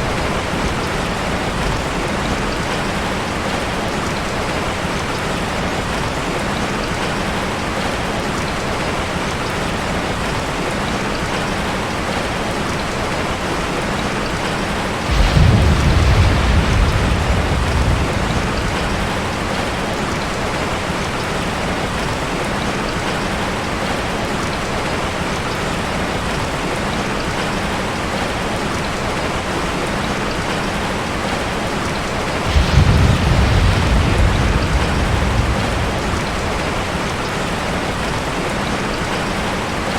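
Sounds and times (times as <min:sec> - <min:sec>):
thunder rumbles: 0:00.0 - 0:06.0, 0:15.0 - 0:22.2, 0:32.1 - 0:39.4
rain falling: 0:00.0 - 0:39.9.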